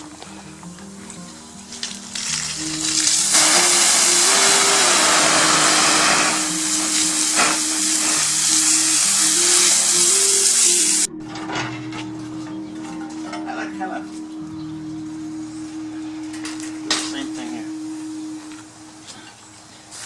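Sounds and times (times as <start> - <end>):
sizzling on a barbecue grill: 0.0 - 11.1, 19.0 - 20.0.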